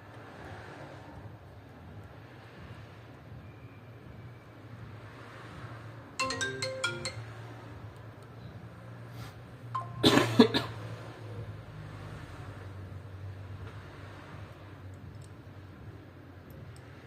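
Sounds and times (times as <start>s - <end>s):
electronic chime notes: 6.2s - 7.5s, 9.8s - 10.0s.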